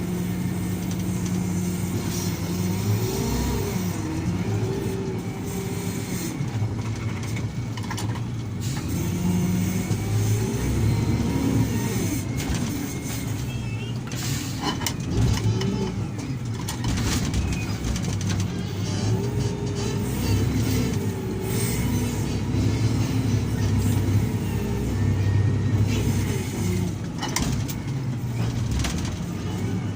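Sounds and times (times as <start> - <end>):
diesel engine under load: 0.0 - 29.9.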